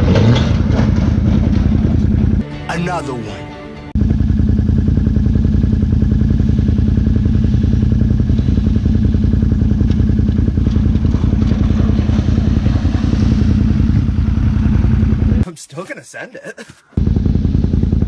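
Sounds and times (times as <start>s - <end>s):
pickup truck engine running: 0.0s - 2.4s, 4.0s - 15.4s, 17.0s - 18.0s.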